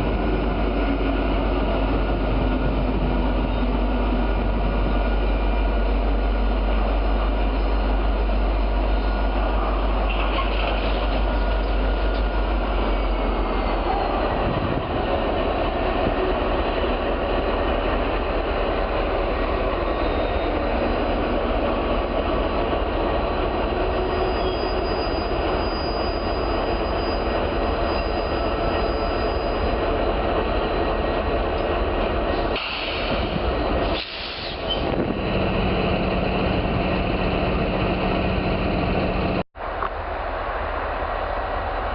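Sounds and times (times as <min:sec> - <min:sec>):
train wheels on rails: 0:00.0 - 0:41.9
faint wheel squeals: 0:24.1 - 0:29.7.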